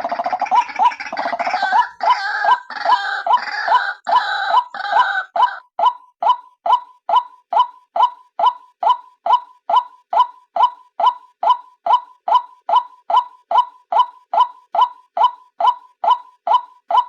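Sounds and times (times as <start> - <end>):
harsh gargling bird chatter: 0.0 - 5.7.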